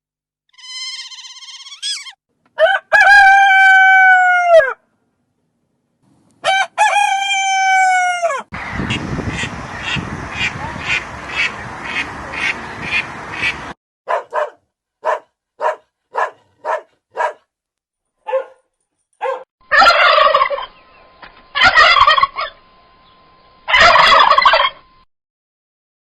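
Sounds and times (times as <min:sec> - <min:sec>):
turkey gobbling: 0:06.4 - 0:13.7, 0:19.6 - 0:20.8, 0:21.6 - 0:22.6, 0:23.7 - 0:24.8.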